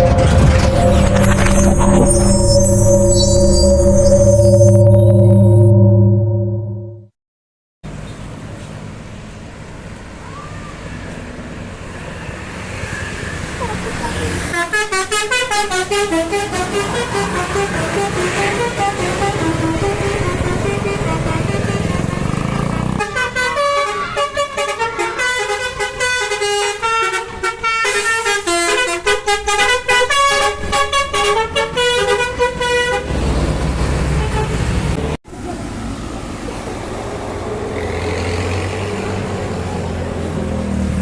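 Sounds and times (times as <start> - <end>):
bus engine rumbling: 0.0 - 6.8, 13.3 - 41.0
multi-tone bus horn tune: 0.0 - 7.0, 14.3 - 35.0.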